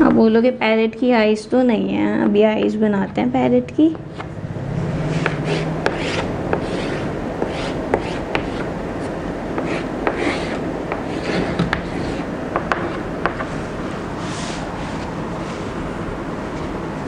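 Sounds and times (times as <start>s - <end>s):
pen scratching on board: 5.0s - 13.0s
pen tapping down: 5.2s - 8.7s, 9.6s - 13.5s.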